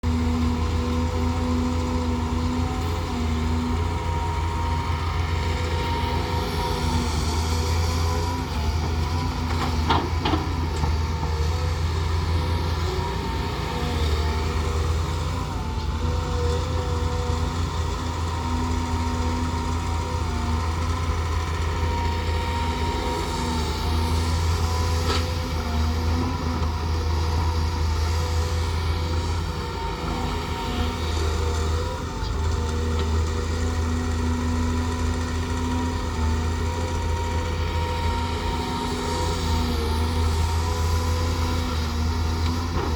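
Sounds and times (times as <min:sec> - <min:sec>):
excavator diesel hum: 0:00.0 - 0:42.9.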